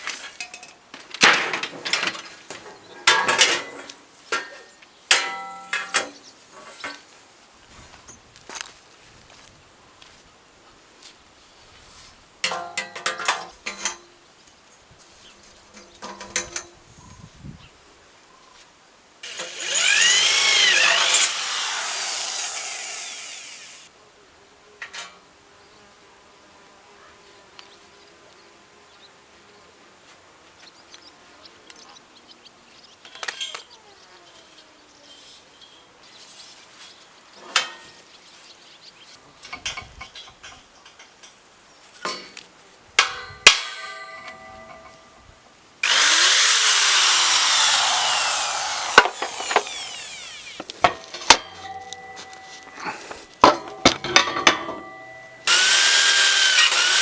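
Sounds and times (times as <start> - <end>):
power tool running: 19.2 - 23.9, 45.8 - 50.7, 55.4 - 57.0
knocks and clicks of tools: 47.0 - 52.8.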